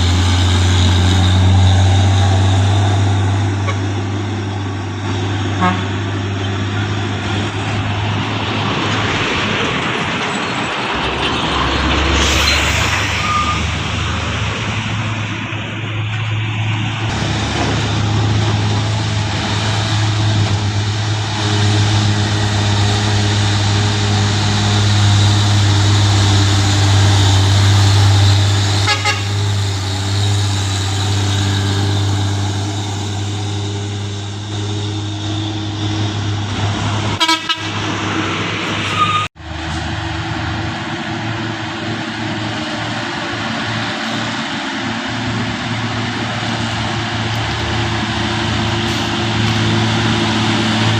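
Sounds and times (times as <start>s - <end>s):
truck horn toots: 0.0s - 4.4s, 5.4s - 6.6s, 19.5s - 36.2s, 37.1s - 38.0s
heavy truck diesel engine: 0.0s - 50.9s.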